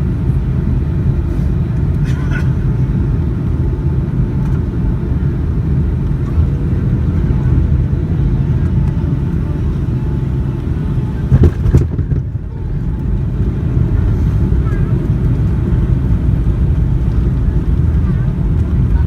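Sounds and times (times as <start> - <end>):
aircraft cabin low rumble: 0.0 - 19.0.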